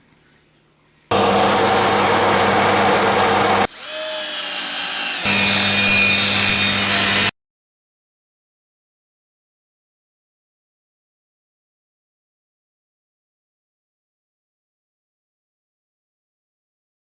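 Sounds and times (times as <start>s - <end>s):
table saw cutting wood: 1.1s - 7.3s.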